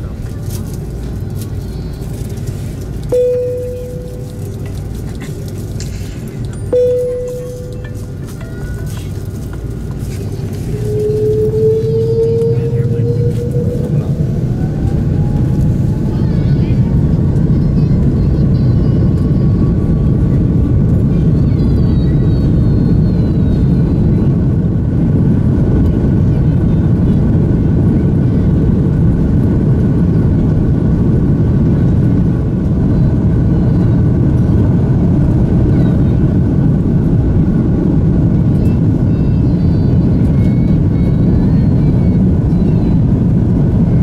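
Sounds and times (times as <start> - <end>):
faint whining tones: 0.0 - 24.8
jet engines rushing: 0.0 - 44.0
wheels rumbling on runway: 0.0 - 44.0.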